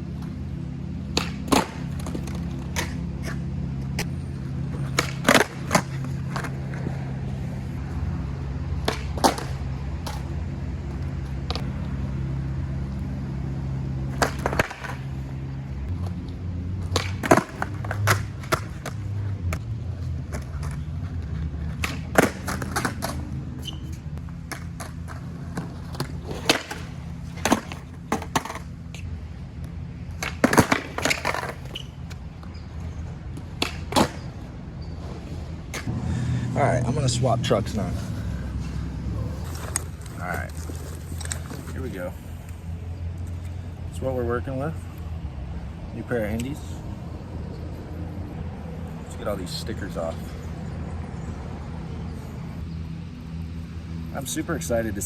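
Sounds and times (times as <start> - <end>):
steady low hum: 0.0 - 54.9
skateboard rolling on concrete: 0.0 - 55.0
skateboard clacks on landings: 4.8 - 6.5, 16.9 - 19.6, 21.7 - 23.2, 24.5 - 28.7, 30.2 - 31.8.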